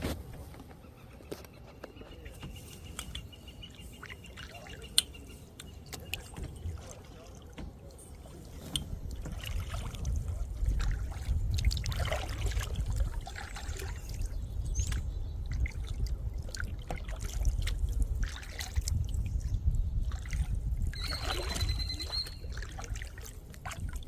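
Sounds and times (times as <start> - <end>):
kayak paddle strokes splashing: 1.8 - 24.0
steady low rumble: 2.1 - 21.0
high whistling tone: 21.0 - 22.4.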